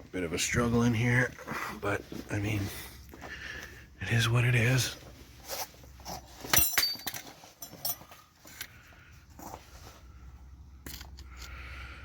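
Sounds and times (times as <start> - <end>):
metal tools clinking on metal: 6.2 - 8.7.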